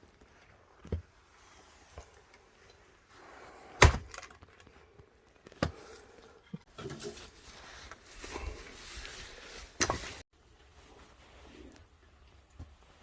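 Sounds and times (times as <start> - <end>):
axe splitting log: 3.8 - 4.4.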